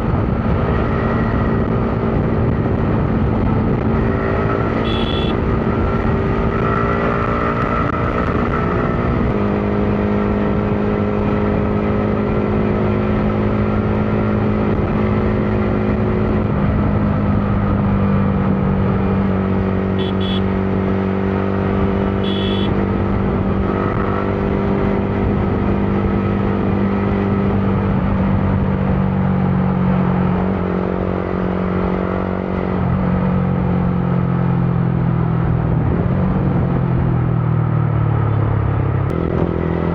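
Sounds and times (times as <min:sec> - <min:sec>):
wind and road noise: 0:00.0 - 0:39.9
motorcycle engine running: 0:00.1 - 0:24.5
short high horn beeps: 0:04.8 - 0:05.4, 0:20.0 - 0:20.5, 0:22.2 - 0:22.7.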